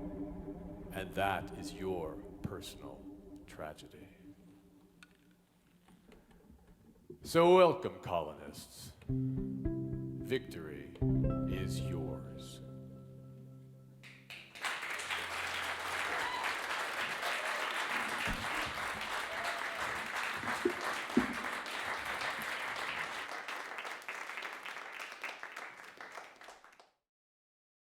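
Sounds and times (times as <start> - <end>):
audience applauding: 14.0 - 26.9.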